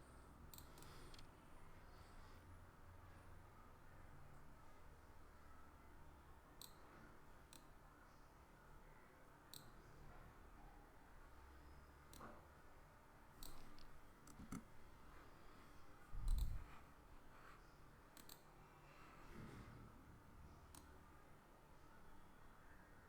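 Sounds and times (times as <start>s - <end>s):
computer mouse clicking: 0.5s - 1.3s, 6.6s - 6.8s, 9.5s - 9.8s, 13.4s - 14.7s, 16.2s - 16.6s, 18.1s - 18.5s, 20.7s - 21.0s.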